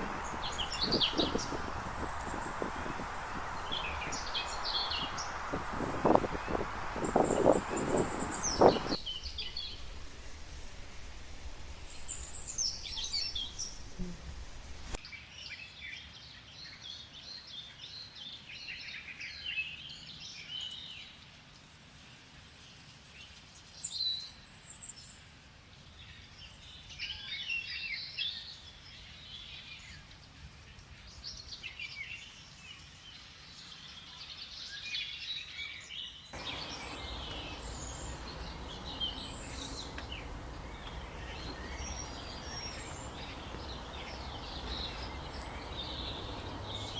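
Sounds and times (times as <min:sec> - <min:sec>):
birds chirping and calling: 0:00.0 - 0:09.8, 0:36.4 - 0:46.9
steady background hiss: 0:00.0 - 0:15.0, 0:36.4 - 0:46.9.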